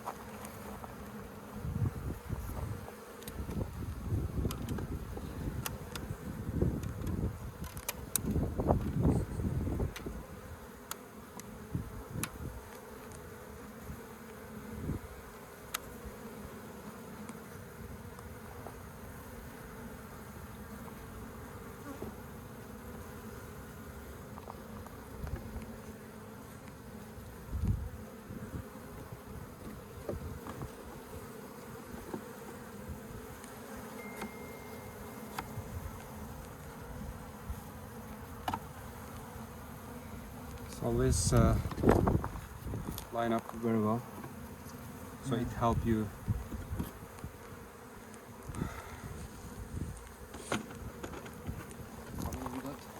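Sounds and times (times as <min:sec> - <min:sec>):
honey bees buzzing: 0:00.0 - 0:52.9
soft knocks of hive parts: 0:28.9 - 0:34.4, 0:38.1 - 0:39.4, 0:41.3 - 0:44.9, 0:49.9 - 0:52.9.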